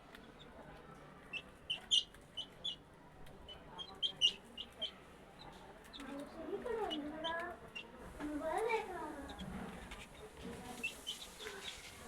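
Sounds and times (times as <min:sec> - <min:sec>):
chicks peeping: 0:10.8 - 0:12.0.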